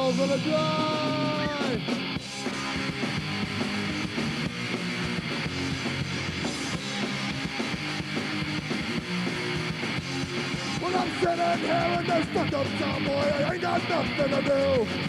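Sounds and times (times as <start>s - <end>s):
person singing: 0.0s - 1.8s, 10.8s - 15.0s
bass guitar: 0.0s - 15.0s
drum kit beat: 0.0s - 15.0s
electric guitar chords: 0.0s - 15.0s.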